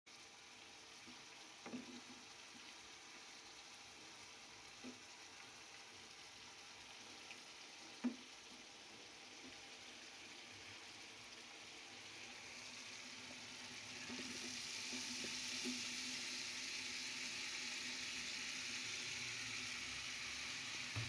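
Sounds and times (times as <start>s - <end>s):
chicken sizzling in a pan: 0.1s - 21.0s.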